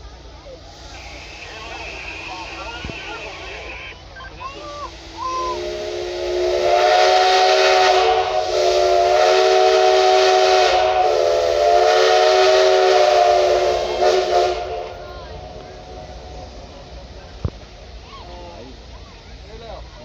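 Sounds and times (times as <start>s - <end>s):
hiss: 0.2s - 20.0s
train whistle blasts: 0.8s - 3.9s, 4.8s - 16.4s.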